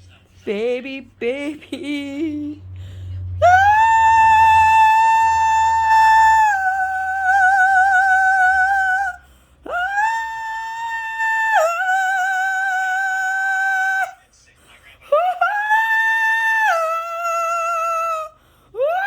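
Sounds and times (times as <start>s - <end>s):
person singing high note: 3.4s - 14.1s.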